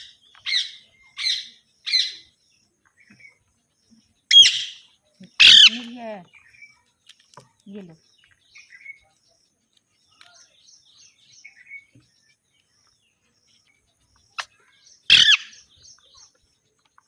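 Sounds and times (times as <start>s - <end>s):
parakeets twittering: 0.0s - 2.3s, 4.3s - 6.6s, 14.2s - 16.4s
parakeet harsh squawk: 4.3s - 4.8s, 5.4s - 5.9s, 15.1s - 15.6s.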